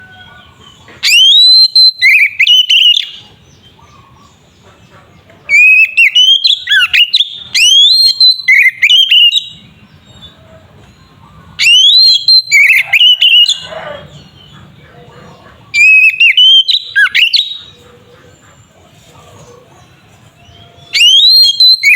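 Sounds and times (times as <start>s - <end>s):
bird singing whistled song: 1.0s - 3.4s, 5.5s - 10.4s, 11.6s - 14.4s, 15.7s - 17.8s, 20.4s - 21.9s.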